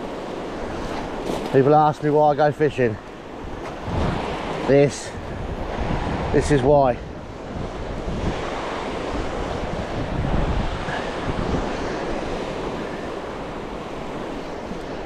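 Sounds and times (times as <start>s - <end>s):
waves washing onto shore: 0.0s - 15.0s
wind on microphone: 3.3s - 15.0s.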